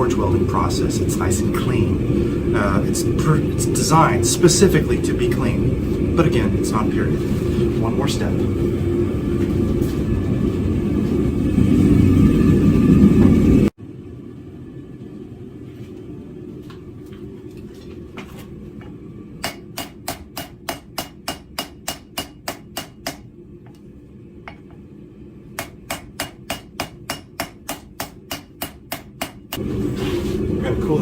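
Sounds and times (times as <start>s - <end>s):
steady low hum: 0.0s - 31.0s
hammer striking hot steel on anvil: 19.4s - 23.3s, 24.5s - 24.8s, 25.6s - 29.7s.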